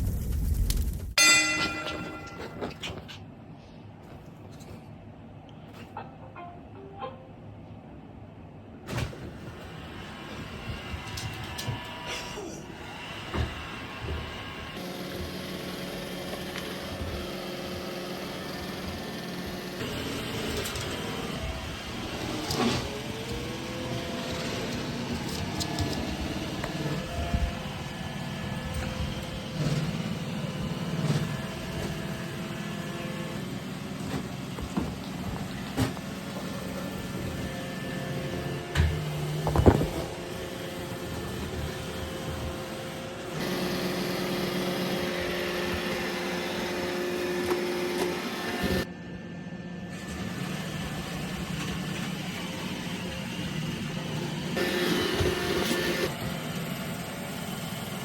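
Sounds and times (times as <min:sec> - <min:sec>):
robot vacuum motor whir: 0:12.8 - 0:48.9, 0:49.9 - 0:58.0.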